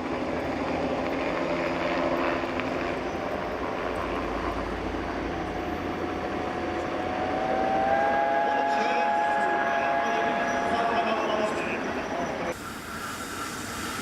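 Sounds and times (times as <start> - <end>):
helicopter flying overhead: 0.0 - 14.0
faint rising tone: 5.6 - 11.2.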